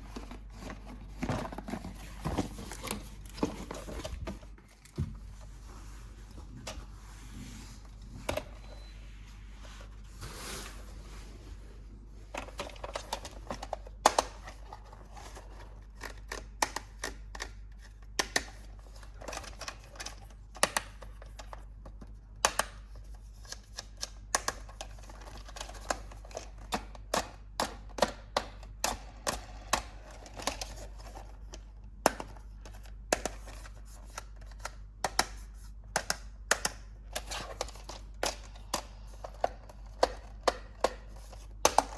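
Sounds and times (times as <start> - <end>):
clicks and taps handling toys: 12.3 - 41.9.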